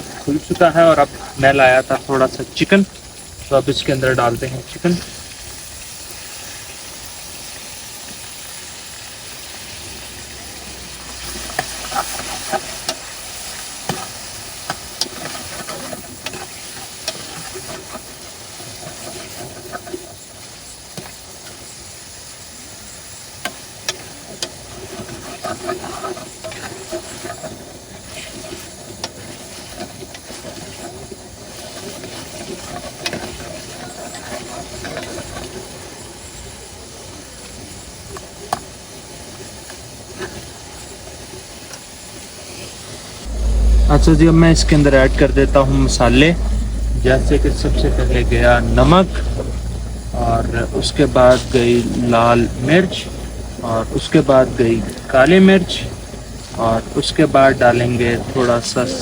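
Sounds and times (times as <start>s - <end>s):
chicken sizzling in hot oil: 0.0s - 43.3s
spoon scraping a pan: 23.4s - 35.6s.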